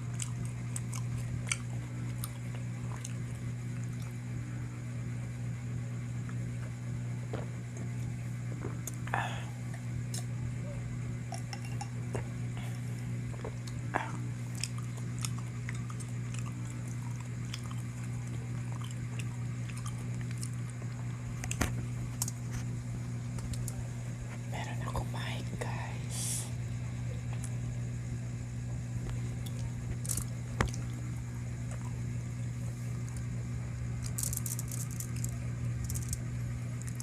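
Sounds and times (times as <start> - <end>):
person chewing food: 0.0 - 4.2, 11.3 - 22.6
low steady hum: 0.0 - 37.0.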